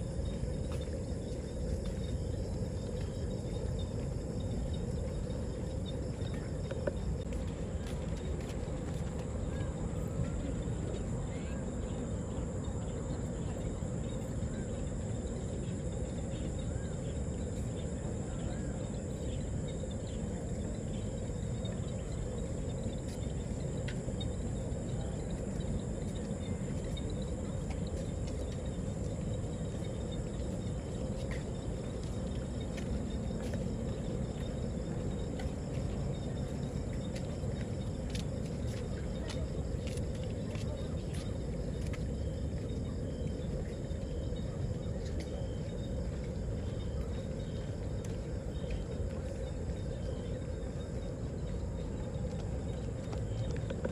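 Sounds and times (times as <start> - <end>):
constant low rumble: 0.0 - 53.9
crickets chirping: 0.0 - 53.9.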